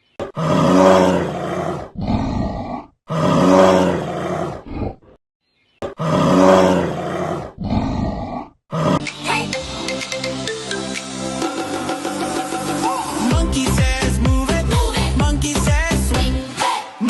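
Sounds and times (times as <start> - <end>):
animal roar: 0.2 - 5.1, 5.9 - 9.1.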